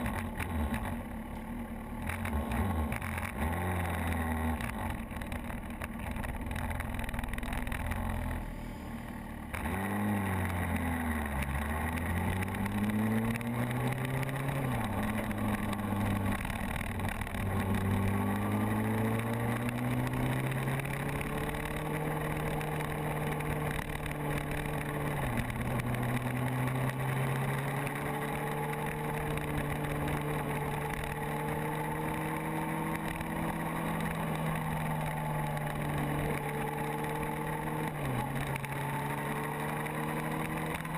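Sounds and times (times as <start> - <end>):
motorcycle engine accelerating: 0.0 - 40.9
wind and road noise: 0.0 - 40.9.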